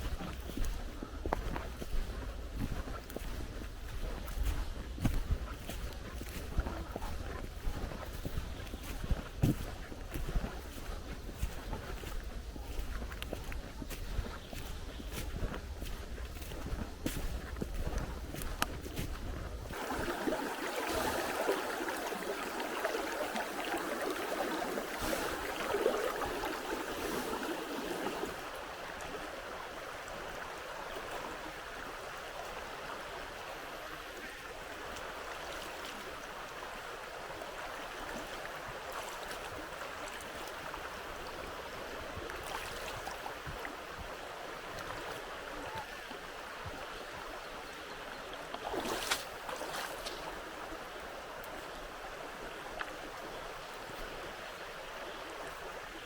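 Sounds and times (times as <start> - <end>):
river water rushing: 19.7 - 56.0.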